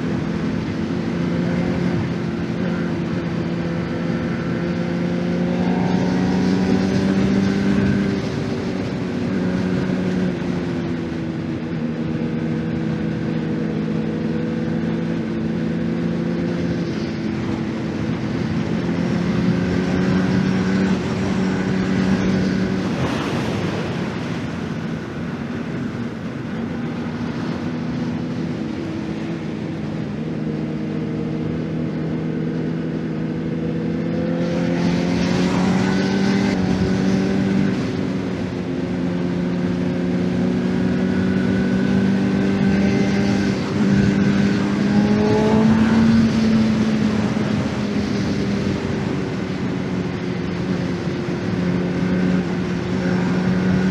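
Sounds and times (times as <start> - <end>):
motorcycle engine revving: 12.2 - 29.2, 31.7 - 49.4
rush of noise: 21.0 - 28.3.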